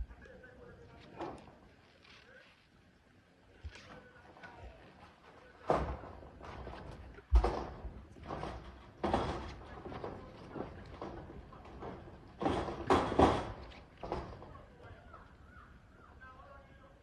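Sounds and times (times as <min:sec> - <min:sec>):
knocks on metal roof: 0:05.7 - 0:14.8.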